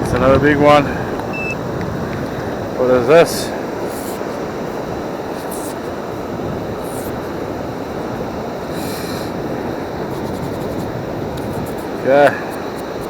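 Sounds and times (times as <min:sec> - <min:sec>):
surf roaring: 0:00.0 - 0:13.0
short high hisses: 0:08.7 - 0:09.4.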